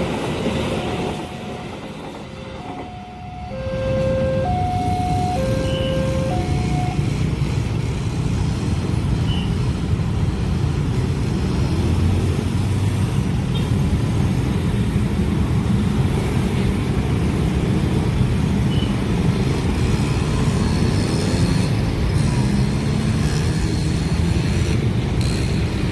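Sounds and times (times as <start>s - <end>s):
train passing low rumble: 0.0s - 22.1s.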